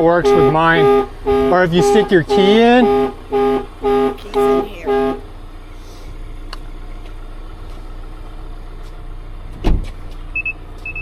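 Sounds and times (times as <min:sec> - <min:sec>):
car alarm short high beeps: 0:00.2 - 0:05.3, 0:10.3 - 0:11.0
thump: 0:09.6 - 0:10.0.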